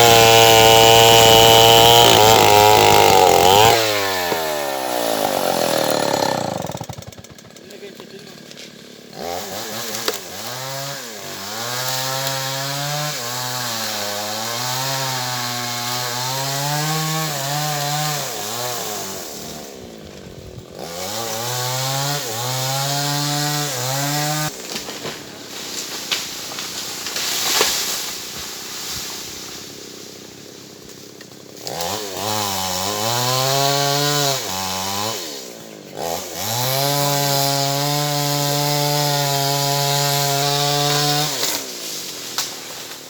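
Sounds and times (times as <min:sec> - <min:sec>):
chainsaw cutting wood: 0:00.0 - 0:43.0.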